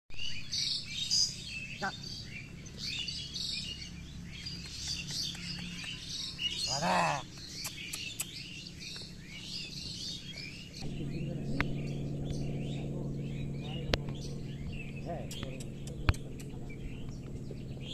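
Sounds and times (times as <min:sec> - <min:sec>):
small birds chirping: 0:00.1 - 0:17.9
man calling: 0:06.7 - 0:07.2.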